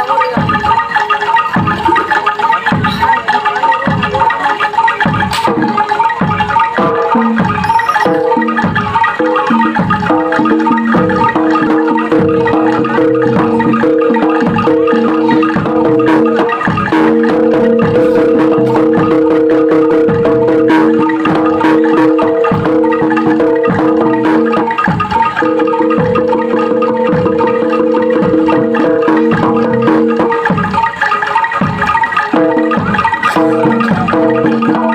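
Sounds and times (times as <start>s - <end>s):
held ringing notes: 0.0s - 34.9s
regular drum strokes: 0.0s - 34.9s
struck metal-keyed instruments: 0.0s - 34.9s.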